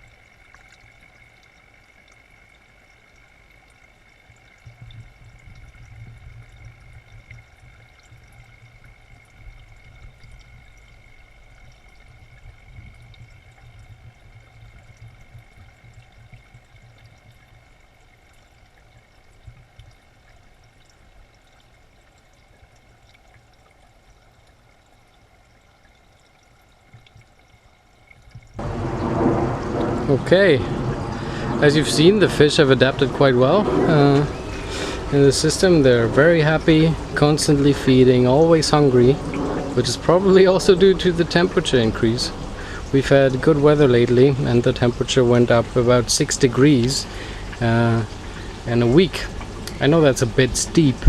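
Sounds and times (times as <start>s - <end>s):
water pouring into fish tank: 0.0s - 51.0s
low uneven rumble: 28.4s - 51.0s
faint high whine: 28.6s - 51.0s.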